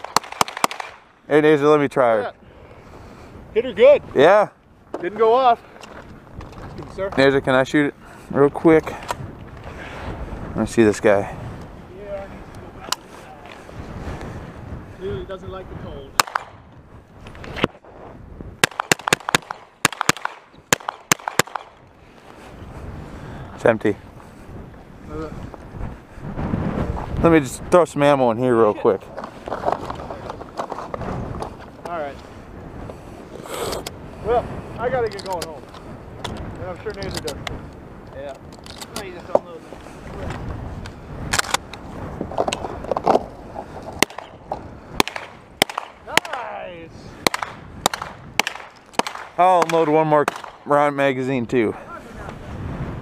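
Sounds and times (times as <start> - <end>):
gunshots with echo: 0.0 - 1.1, 16.2 - 16.6, 18.6 - 21.8, 45.0 - 46.4, 47.2 - 50.6
wind rumble on microphone: 1.4 - 19.7, 21.5 - 53.0
firearm cracks and clicks: 41.3 - 41.8, 47.3 - 50.6.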